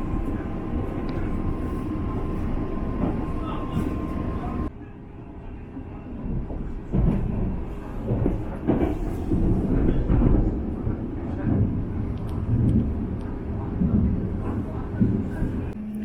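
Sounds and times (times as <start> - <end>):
train wheels rumbling on rails: 0.0 - 4.7, 6.1 - 15.8.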